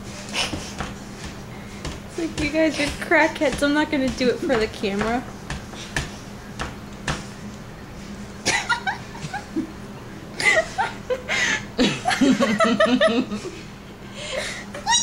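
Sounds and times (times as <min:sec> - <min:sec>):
woman laughing: 0:08.4 - 0:09.8, 0:10.4 - 0:13.6, 0:14.4 - 0:15.0.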